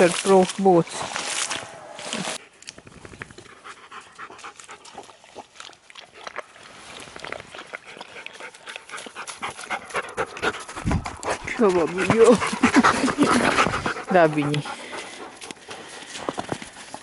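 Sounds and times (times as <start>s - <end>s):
dogs panting: 3.4s - 5.5s, 7.5s - 17.0s.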